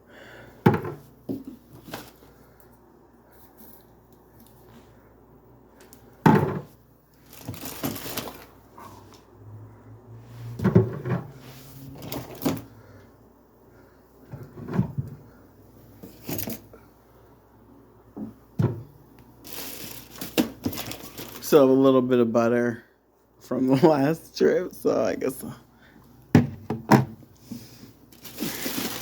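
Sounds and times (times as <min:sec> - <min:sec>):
groceries knocking and clunking: 0:00.1 - 0:02.7, 0:05.7 - 0:09.2, 0:10.5 - 0:13.0, 0:13.7 - 0:16.9, 0:18.1 - 0:21.9, 0:25.8 - 0:29.0
packaging rustling: 0:07.1 - 0:08.7, 0:19.4 - 0:21.6, 0:28.0 - 0:29.0.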